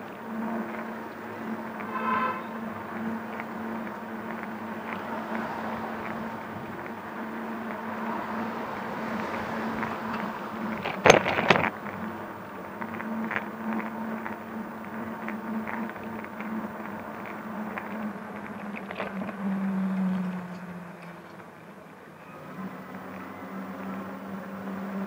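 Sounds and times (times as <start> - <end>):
low electric hum: 0.0 - 25.0
street traffic: 0.0 - 25.0
loud short clatter: 10.8 - 11.8.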